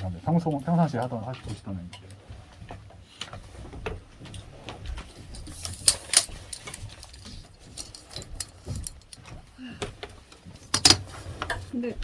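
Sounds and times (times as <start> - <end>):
light clicks and taps: 0.4 - 5.6.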